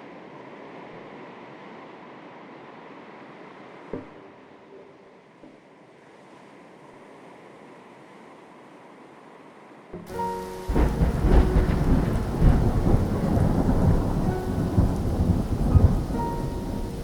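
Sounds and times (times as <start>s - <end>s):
faint sea: 0.0s - 17.0s
heavy rain: 0.0s - 17.0s
held musical notes: 10.0s - 17.0s
rolling thunder: 10.0s - 17.0s.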